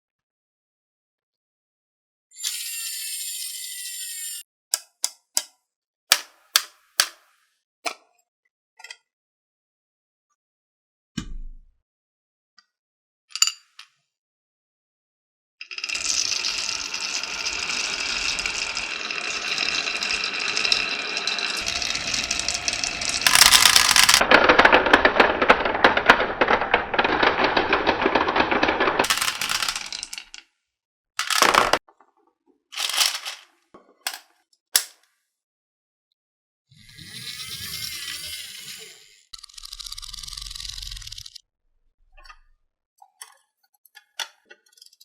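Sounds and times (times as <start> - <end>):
marbles rattling along a track: 15.6 - 30.4, 31.2 - 31.8, 32.8 - 33.4.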